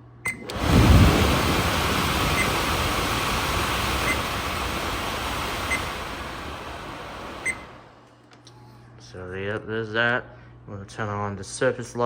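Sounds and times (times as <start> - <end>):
vent fan rushing air: 0.3 - 8.2.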